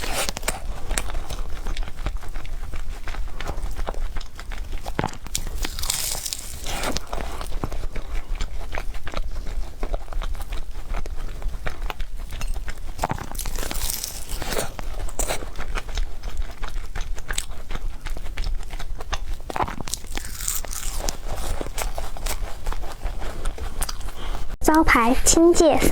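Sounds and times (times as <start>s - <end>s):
person chewing food: 0.0s - 24.6s
wet mouth clicks: 0.0s - 24.6s.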